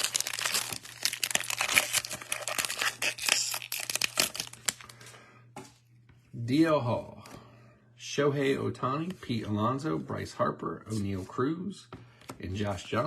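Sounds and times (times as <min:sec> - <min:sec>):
card pack wrapper tearing and crinkling: 0:00.0 - 0:05.1.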